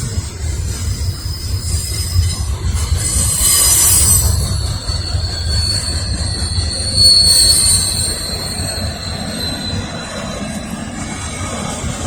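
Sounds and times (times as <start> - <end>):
freight train cars rumbling: 0.0 - 12.0
train wheels squealing: 0.0 - 12.0.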